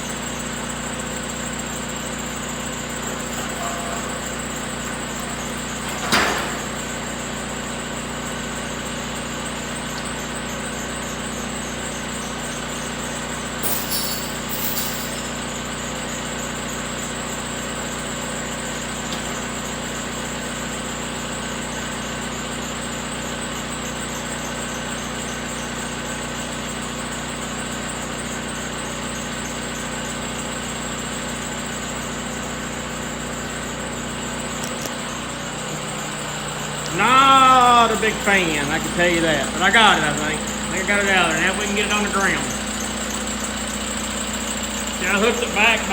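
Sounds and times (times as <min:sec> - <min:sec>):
machine engine running: 0:00.0 - 0:15.8, 0:32.5 - 0:45.9.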